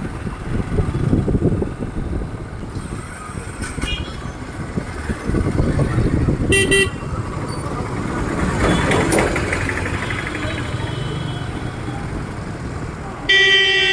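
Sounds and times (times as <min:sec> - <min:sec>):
motorcycle engine: 0:03.8 - 0:13.7
vehicle horn beep: 0:06.5 - 0:07.0, 0:13.3 - 0:13.9.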